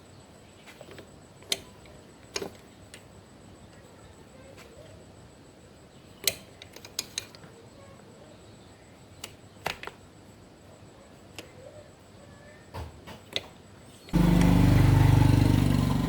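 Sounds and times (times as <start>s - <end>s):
clicks and taps of metal tools: 6.2s - 7.6s, 13.1s - 13.6s.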